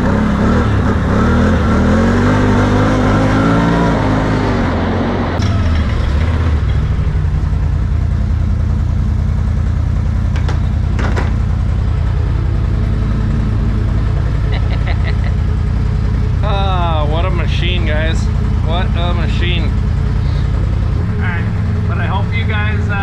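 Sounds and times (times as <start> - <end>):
engine idling: 5.4 - 23.0.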